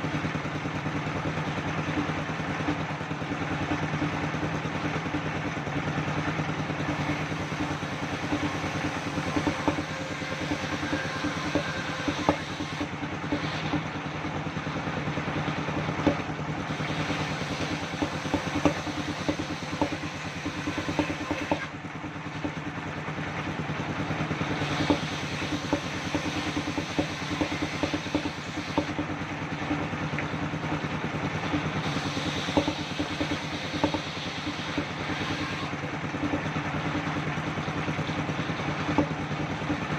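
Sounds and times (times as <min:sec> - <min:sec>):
sawmill engine hum: 0:00.0 - 0:39.9
clattering clicks and knocks: 0:06.8 - 0:14.4, 0:15.9 - 0:16.4, 0:17.2 - 0:22.8, 0:24.6 - 0:39.9.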